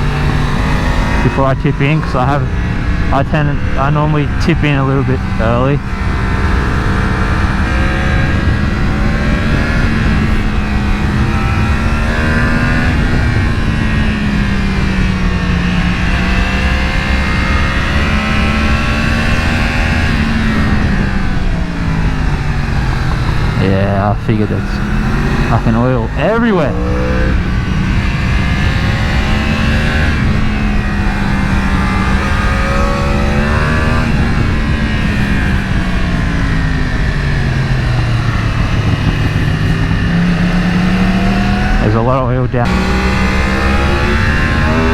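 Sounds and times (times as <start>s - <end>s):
wind rush: 0.0s - 42.0s
motorcycle engine running: 0.0s - 44.9s.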